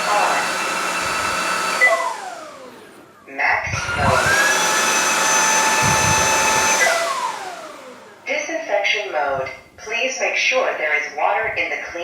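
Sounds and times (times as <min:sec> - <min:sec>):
floor cleaner motor whining: 0:00.0 - 0:09.6.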